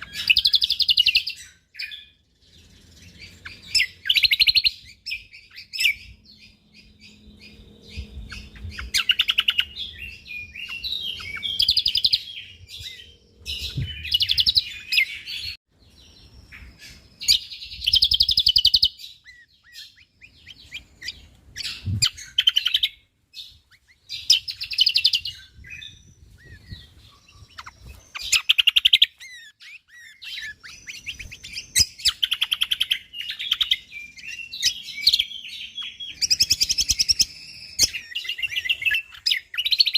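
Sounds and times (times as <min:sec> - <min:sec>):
songbird chattering: 0:16.2 - 0:39.9.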